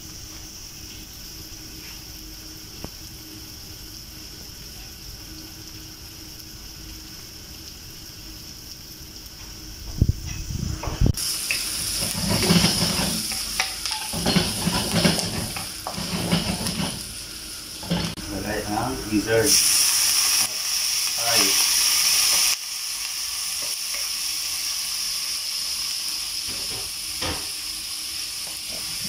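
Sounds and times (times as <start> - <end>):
onions sizzling in a frying pan: 0.0 - 29.0
wooden spatula scraping a pan: 11.5 - 17.1.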